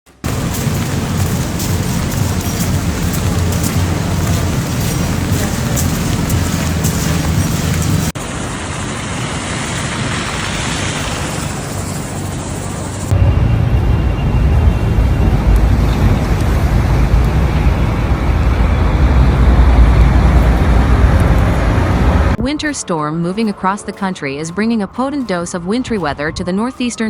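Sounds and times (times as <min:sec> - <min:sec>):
heavy low rumble: 0:00.1 - 0:09.2, 0:13.0 - 0:22.6
road traffic noise: 0:00.1 - 0:22.4.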